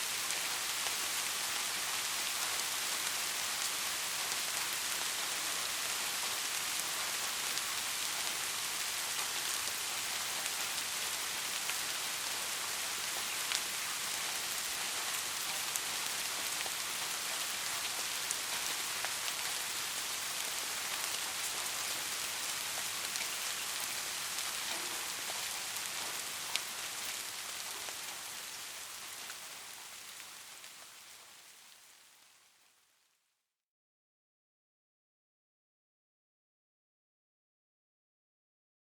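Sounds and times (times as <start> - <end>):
steady rain hiss: 0.0 - 33.2
raindrops ticking: 24.4 - 30.8.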